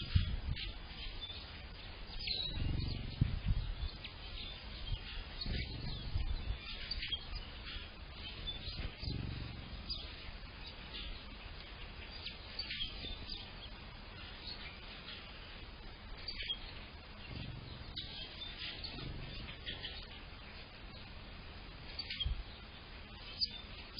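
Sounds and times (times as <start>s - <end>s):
songbirds chirping and singing: 0.0s - 23.9s
low rumble: 2.2s - 11.3s, 16.9s - 21.6s.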